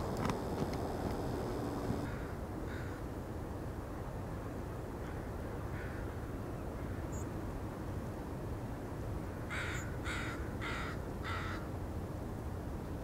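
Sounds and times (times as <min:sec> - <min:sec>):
low background rumble: 0:00.0 - 0:02.1.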